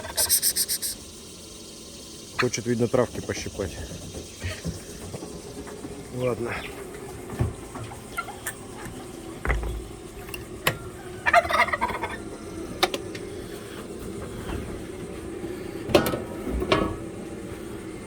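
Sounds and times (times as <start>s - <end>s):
turkeys gobbling: 0.0s - 1.0s, 7.8s - 13.8s.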